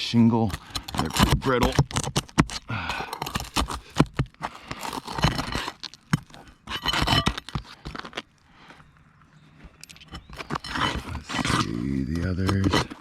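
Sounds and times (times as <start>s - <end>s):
roof shingles scraping and crackling: 0.0s - 8.3s, 10.3s - 13.0s
sharp clicks and knocks: 0.3s - 7.6s.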